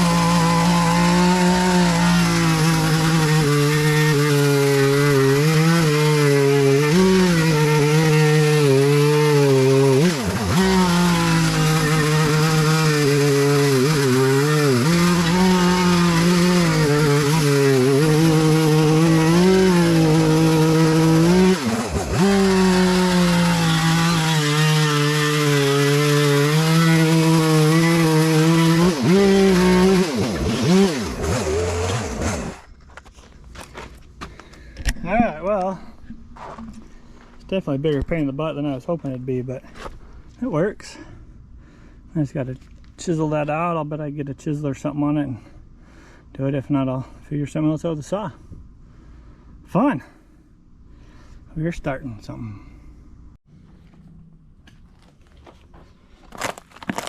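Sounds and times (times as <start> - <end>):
chainsaw cutting wood: 0.0 - 32.7, 56.2 - 57.0.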